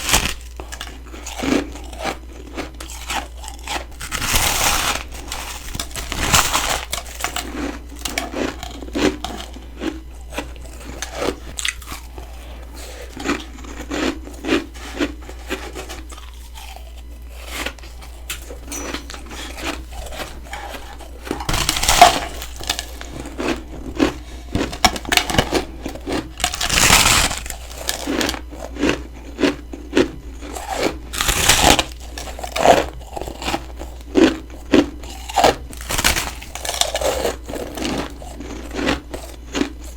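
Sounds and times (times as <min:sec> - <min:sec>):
person crunching frost: 0:00.0 - 0:39.9.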